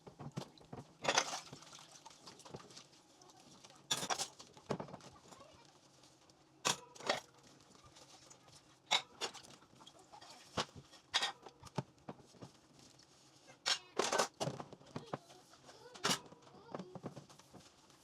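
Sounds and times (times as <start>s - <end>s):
dishes clinking and knocking: 0.2s - 1.4s, 3.9s - 5.0s, 8.9s - 9.4s, 10.6s - 11.5s.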